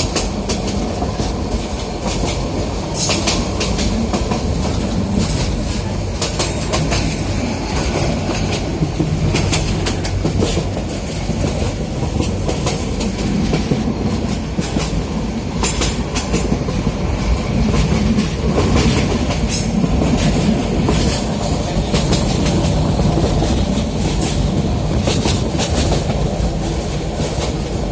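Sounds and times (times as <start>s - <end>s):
clacking over rail joints: 0.0s - 27.9s
train wheels rumbling on rail: 0.0s - 27.9s.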